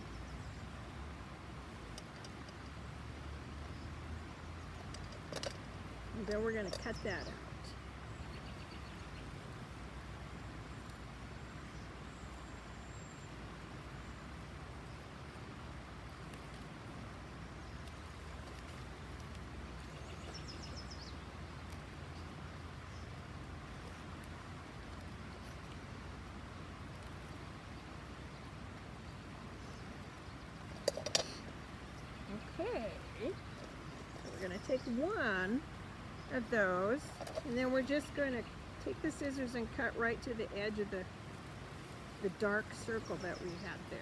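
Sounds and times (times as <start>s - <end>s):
low hum with faint hiss: 0.0s - 44.0s.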